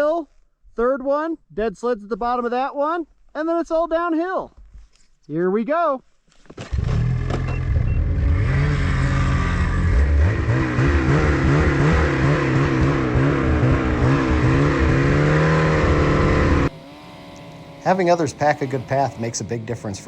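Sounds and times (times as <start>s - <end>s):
snowmobile engine revving: 6.7s - 20.0s.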